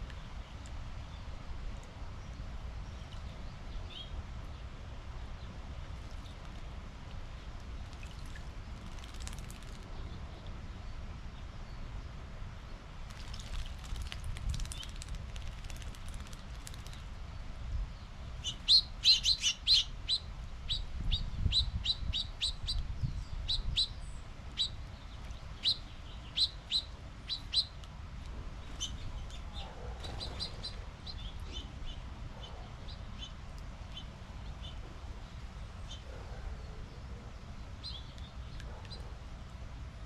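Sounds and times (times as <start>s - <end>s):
birds chirping: 28.5s - 39.2s.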